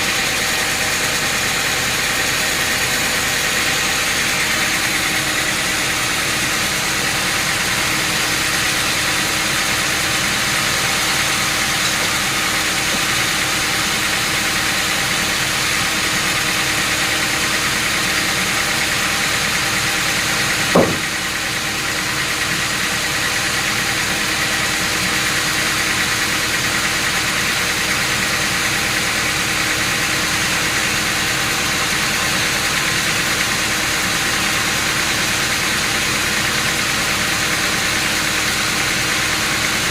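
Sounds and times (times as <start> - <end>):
engine humming: 0.0 - 29.2.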